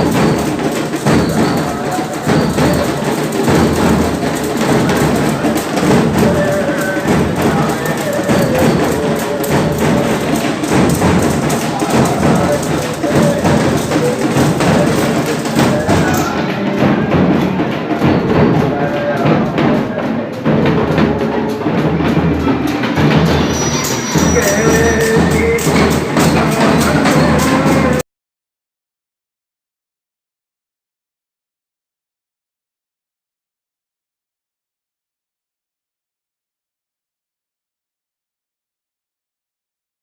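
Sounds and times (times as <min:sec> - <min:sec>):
procession drumming: 0:00.0 - 0:28.0.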